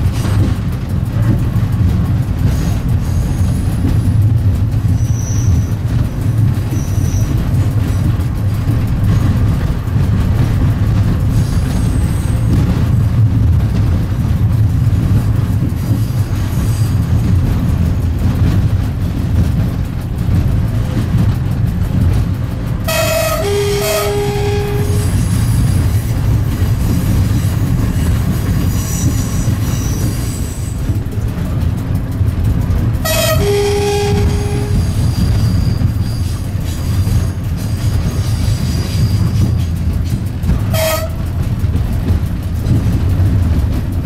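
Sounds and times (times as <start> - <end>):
train rumbling along track: 0.0 - 44.0
train horn: 22.8 - 25.5, 33.0 - 36.4, 40.7 - 41.3.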